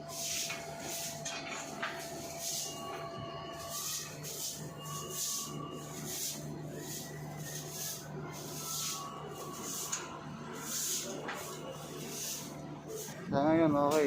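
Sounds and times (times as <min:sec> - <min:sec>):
air conditioner unit humming: 0:00.0 - 0:14.0.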